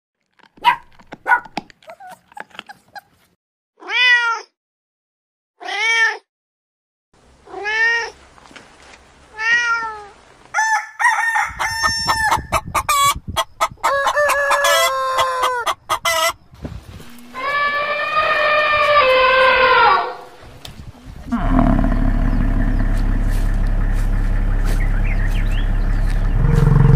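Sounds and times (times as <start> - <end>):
cat meowing: 3.8 - 4.5
chickens clucking: 11.8 - 16.4
long drawn-out animal call: 17.3 - 20.3, 21.3 - 23.8.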